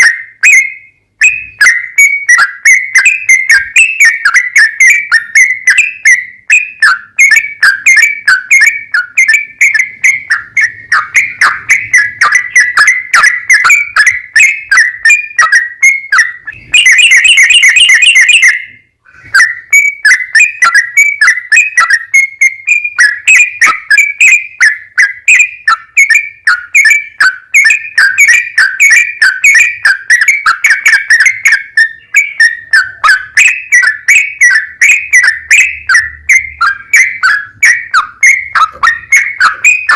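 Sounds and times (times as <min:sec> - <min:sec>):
bird song chattering whistled notes: 0:00.0 - 0:39.9.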